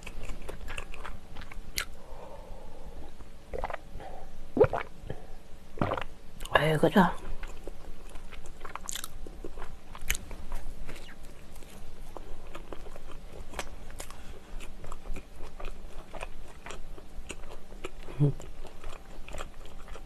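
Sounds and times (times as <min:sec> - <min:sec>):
chewing bread roll: 0:00.0 - 0:02.0, 0:07.2 - 0:20.0.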